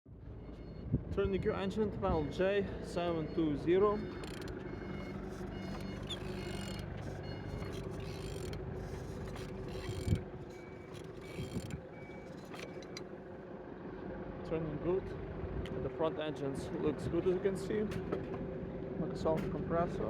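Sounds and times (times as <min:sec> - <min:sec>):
mechanical clicking: 0:04.0 - 0:13.1
engine turned over by hand: 0:04.0 - 0:13.3.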